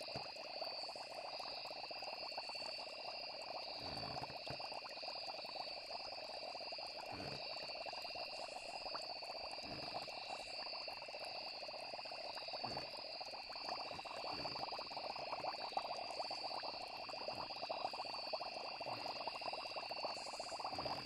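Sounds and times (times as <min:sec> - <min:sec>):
insects trilling: 0:00.0 - 0:21.0
low soft plops: 0:12.1 - 0:21.0.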